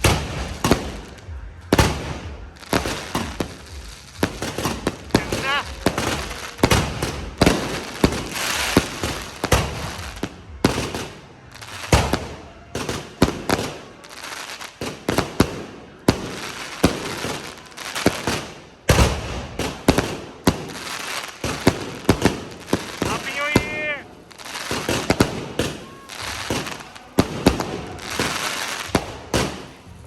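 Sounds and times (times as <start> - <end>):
fireworks banging: 0.0 - 30.0
fireworks crackling and hissing: 0.0 - 30.0.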